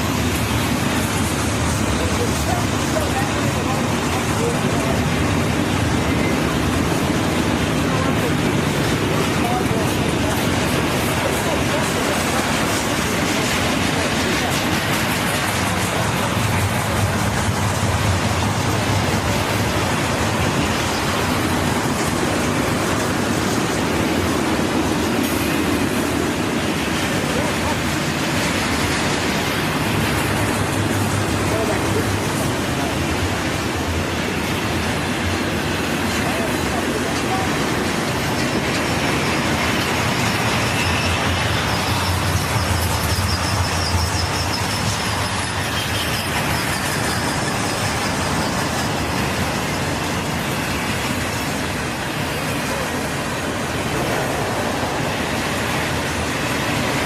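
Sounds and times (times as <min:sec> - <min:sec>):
train wheels rolling on rails: 0:00.0 - 0:57.0
high wheel squeal: 0:38.4 - 0:50.8.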